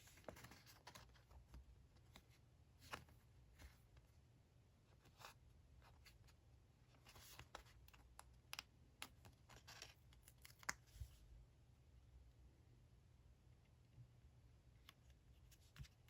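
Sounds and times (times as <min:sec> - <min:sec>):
paper rustling: 0:00.0 - 0:03.9.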